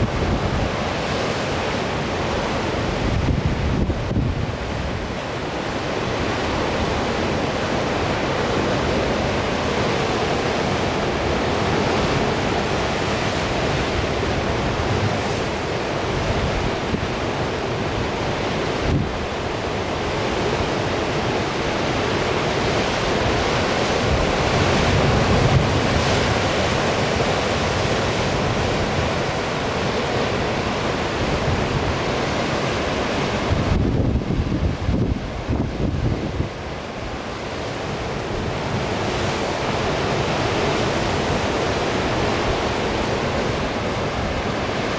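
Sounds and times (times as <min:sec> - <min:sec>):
wind buffeting microphone: 0:00.0 - 0:01.5, 0:02.4 - 0:05.2, 0:23.1 - 0:37.2
sea surf rushing: 0:00.0 - 0:44.9.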